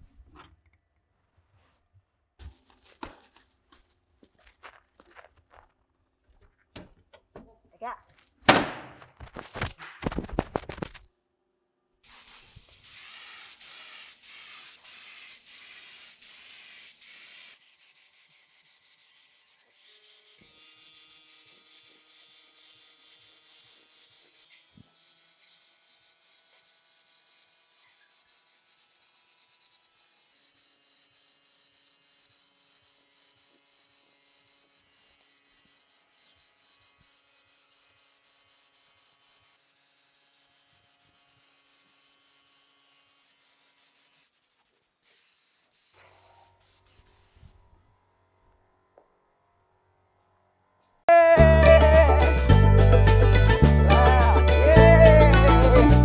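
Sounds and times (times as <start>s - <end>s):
sharp knocks: 8.5s - 11.0s
wood being sanded: 12.0s - 47.5s, 51.1s - 56.0s.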